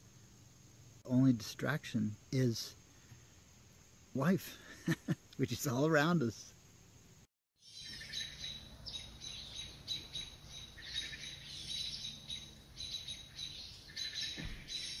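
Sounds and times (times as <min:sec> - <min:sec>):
wild birds chirping: 0:05.8 - 0:15.0.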